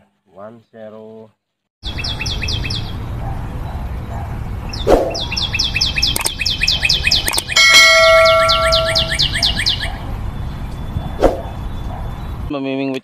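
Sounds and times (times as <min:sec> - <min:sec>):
bird chirping rapidly: 0:01.8 - 0:12.5
short whoosh: 0:04.8 - 0:05.2, 0:11.0 - 0:11.6
sharp clicks: 0:06.0 - 0:06.5, 0:07.1 - 0:07.6.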